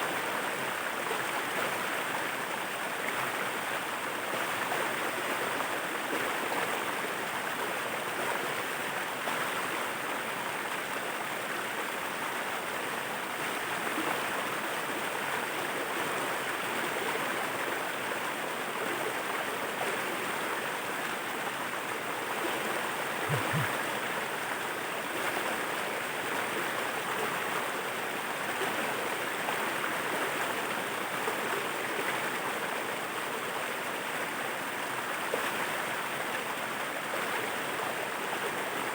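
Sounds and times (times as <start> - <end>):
waterfall rushing: 23.2 - 24.2
low thump: 23.3 - 23.8.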